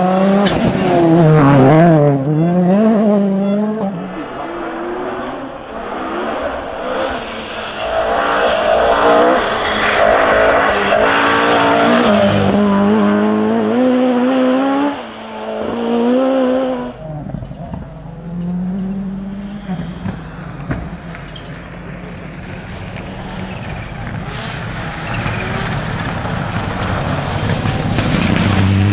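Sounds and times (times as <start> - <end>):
rally car engine revving: 0.0 - 28.9.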